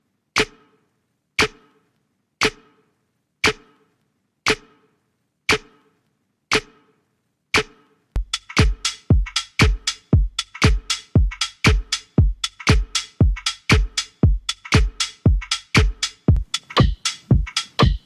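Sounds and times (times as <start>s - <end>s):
sharp percussive click: 0.4s - 0.8s, 1.4s - 1.8s, 2.4s - 2.8s, 3.4s - 3.8s, 4.5s - 4.8s, 5.5s - 5.9s, 6.5s - 6.8s
drum machine beat: 2.4s - 2.6s, 7.6s - 18.0s.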